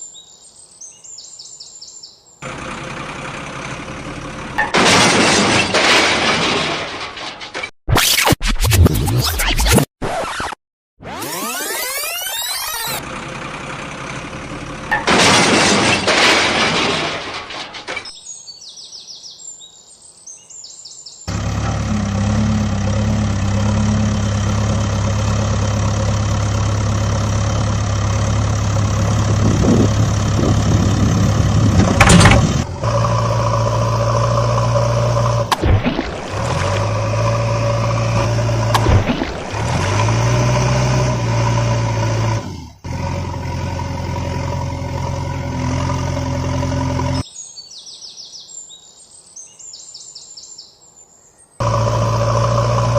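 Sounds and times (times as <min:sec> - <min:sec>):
vehicle engine hum: 0:02.4 - 0:05.0, 0:11.3 - 0:18.0, 0:21.3 - 0:47.2, 0:51.6 - 0:52.9.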